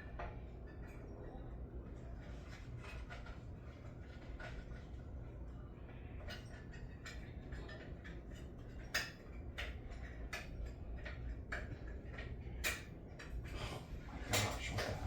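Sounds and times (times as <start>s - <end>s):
tools clicking and knocking: 6.2s - 13.4s.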